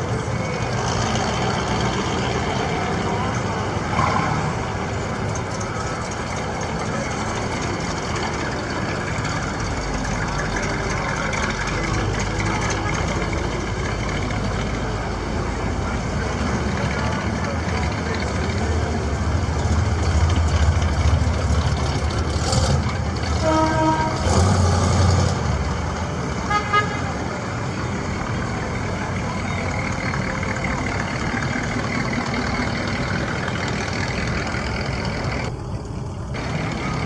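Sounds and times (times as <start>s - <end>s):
passing car engines rumbling: 0.0s - 37.0s
car horn honking: 23.2s - 24.7s, 26.4s - 27.2s.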